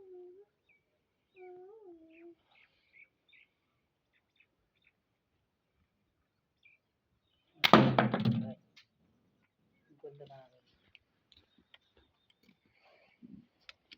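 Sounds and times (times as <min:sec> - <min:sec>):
faint wavering animal call: 0:00.0 - 0:03.1.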